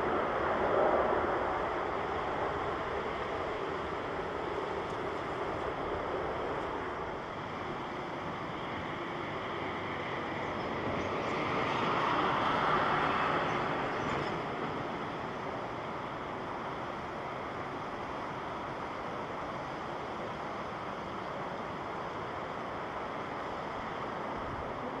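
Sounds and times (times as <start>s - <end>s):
jet airliner passing by: 0.0s - 16.5s.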